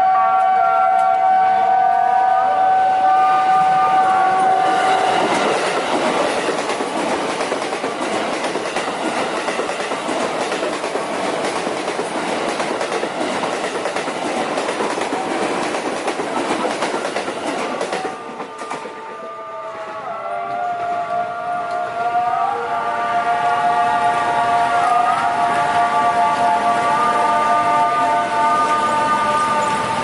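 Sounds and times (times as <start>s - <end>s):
train wheels clattering: 4.3s - 19.0s.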